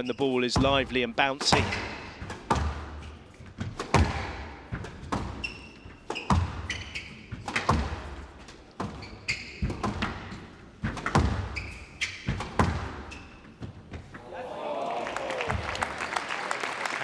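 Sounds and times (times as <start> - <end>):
shoes squeaking on court floor: 0.0 - 14.3
racket striking squash ball: 0.6 - 14.1
ball hitting walls: 0.6 - 14.2.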